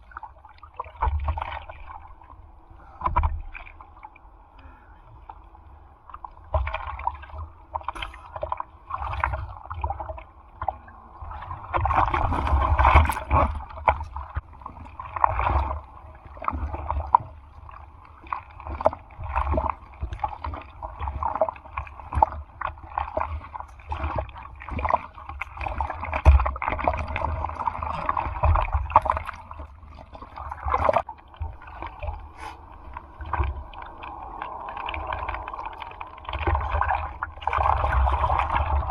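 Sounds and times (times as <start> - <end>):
sea water splashing: 0.0 - 38.9
low buffeting: 31.0 - 38.9.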